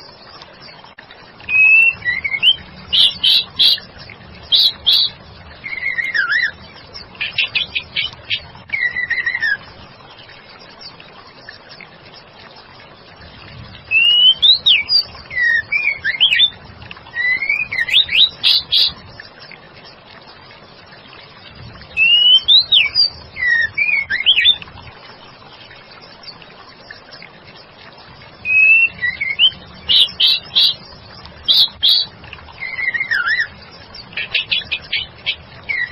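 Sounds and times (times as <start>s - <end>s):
bird singing whistled phrases: 1.5s - 3.8s, 4.5s - 6.6s, 8.7s - 9.6s, 13.9s - 16.6s, 17.2s - 19.0s, 22.0s - 24.6s, 28.4s - 30.8s, 31.5s - 33.5s, 34.3s - 35.9s.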